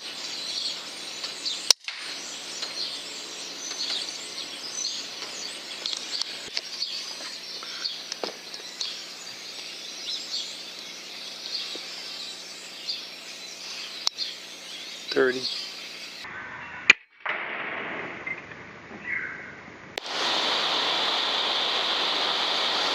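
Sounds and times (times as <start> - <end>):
birds chirping: 0.0 - 16.9, 18.2 - 22.9
air rifle firing crack: 16.9 - 18.5.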